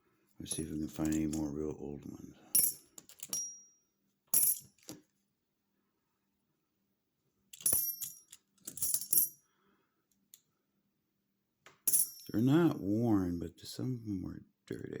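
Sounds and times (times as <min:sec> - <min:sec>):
coins clinking: 0:02.6 - 0:03.6, 0:04.3 - 0:05.0, 0:07.6 - 0:09.4, 0:11.9 - 0:12.4.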